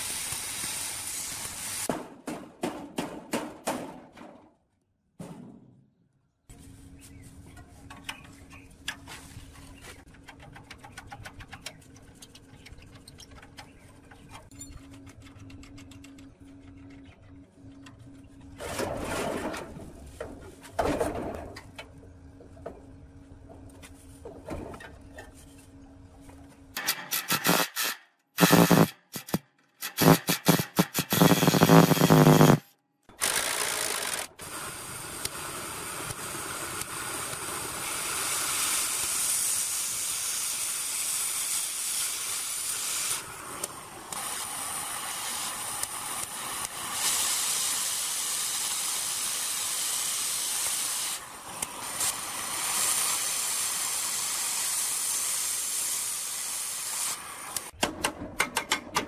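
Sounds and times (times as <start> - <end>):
long steady hiss: 0.0 - 1.9, 34.4 - 57.7
loud rapid rattling bursts: 33.2 - 34.4.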